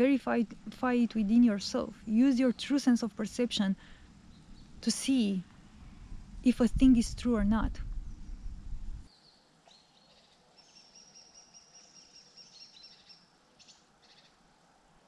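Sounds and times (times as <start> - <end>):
low rumble: 3.9 - 9.1.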